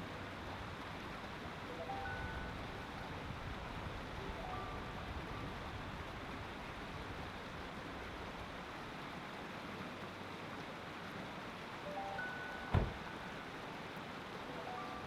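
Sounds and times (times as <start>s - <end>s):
mountain stream rushing: 0.0s - 15.0s
faint piano notes: 11.8s - 15.0s
low thump: 12.7s - 13.1s.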